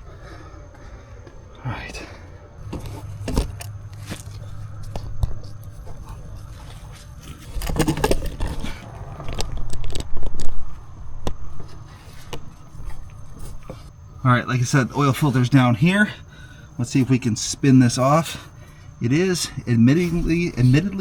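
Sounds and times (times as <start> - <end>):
knocks and clatters of objects handled: 2.6 - 10.6
scraping: 2.6 - 13.9.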